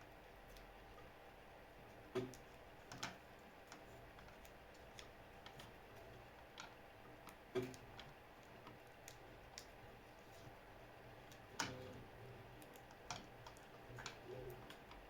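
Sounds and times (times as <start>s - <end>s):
faint light clicks and taps: 12.6s - 15.0s.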